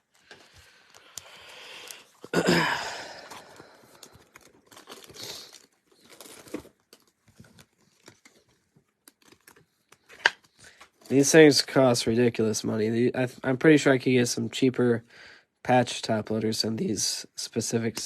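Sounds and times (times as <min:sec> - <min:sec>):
plastic sleeves crinkling: 0:03.1 - 0:11.4.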